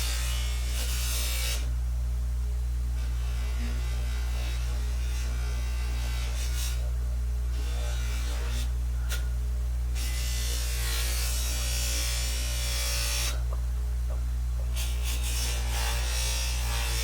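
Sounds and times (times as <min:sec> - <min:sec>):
power tool humming: 0:00.0 - 0:01.8, 0:03.0 - 0:13.6, 0:14.6 - 0:17.0
harsh scratchy rasp: 0:03.0 - 0:09.3, 0:10.0 - 0:13.4, 0:14.7 - 0:17.0.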